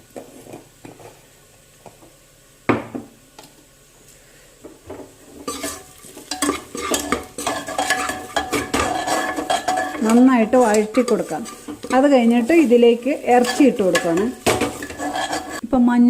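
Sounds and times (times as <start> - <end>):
onions sizzling: 0.0 - 16.0
spoon stirring and scraping onions: 5.0 - 15.7
spoon clinking against pot: 5.5 - 12.0.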